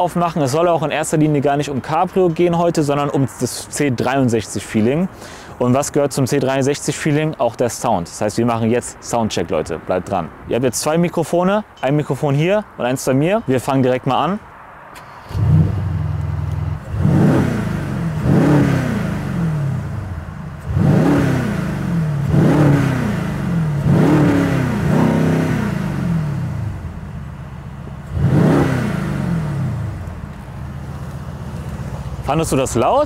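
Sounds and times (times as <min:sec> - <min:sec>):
car engine starting: 0:15.0 - 0:33.0
engine revving: 0:15.2 - 0:32.4.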